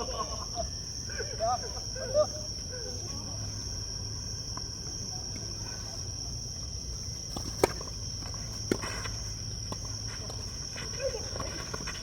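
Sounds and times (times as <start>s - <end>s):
insects buzzing: 0.0s - 12.0s
tennis ball impacts: 7.2s - 10.4s.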